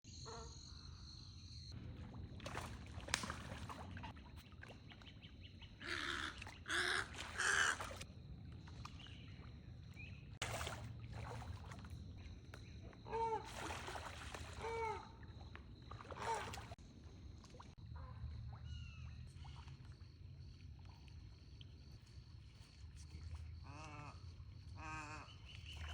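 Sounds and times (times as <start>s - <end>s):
birds squawking harshly: 5.8s - 7.9s.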